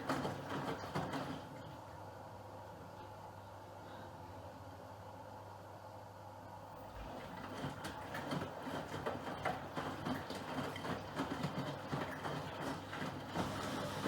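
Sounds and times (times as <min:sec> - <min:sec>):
washing machine drum turning: 0:00.0 - 0:01.6, 0:07.0 - 0:14.0.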